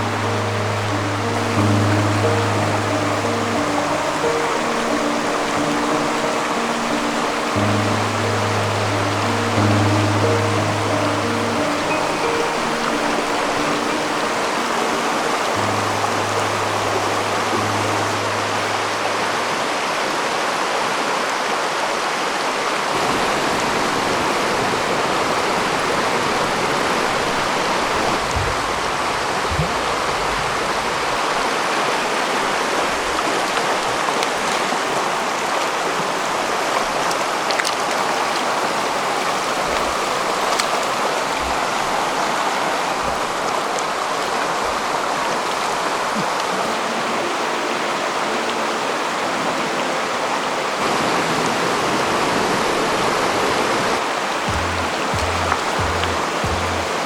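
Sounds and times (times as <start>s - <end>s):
background music: 0.0s - 19.9s, 54.5s - 57.0s
water rushing over rocks: 0.0s - 57.0s.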